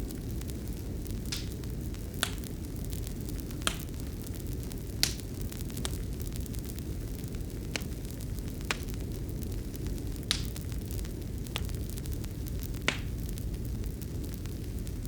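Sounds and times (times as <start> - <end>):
fire crackling pops: 0.0 - 15.0
low rumble of flames: 0.0 - 15.0.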